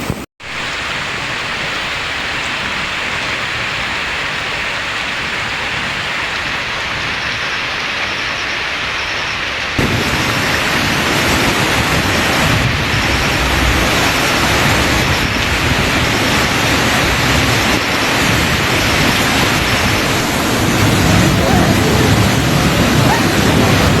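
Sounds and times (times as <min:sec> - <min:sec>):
water rushing: 0:00.0 - 0:24.0
deep rumble: 0:09.8 - 0:24.0.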